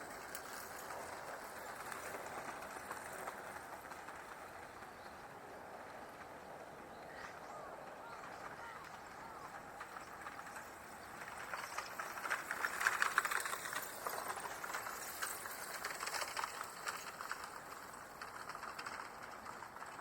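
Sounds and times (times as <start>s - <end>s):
lapwing rattling chatter: 0.2s - 20.0s.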